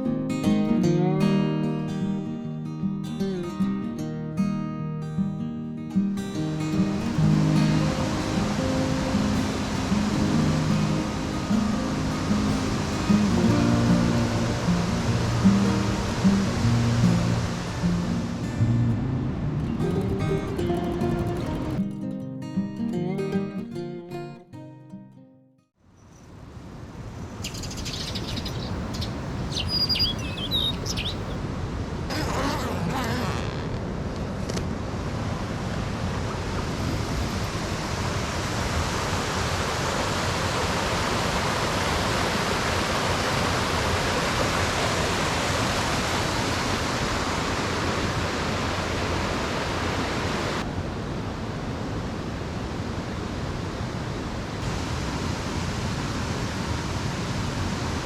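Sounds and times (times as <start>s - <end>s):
mountain stream rushing: 6.1s - 21.8s, 28.1s - 58.0s
small bird chirping: 27.4s - 31.4s.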